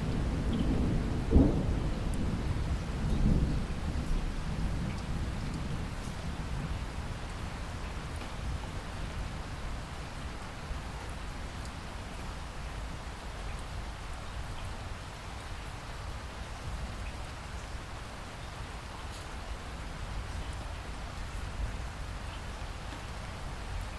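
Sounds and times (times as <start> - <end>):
distant thunder rumble: 0.0 - 7.0
steady rain falling: 0.0 - 23.9.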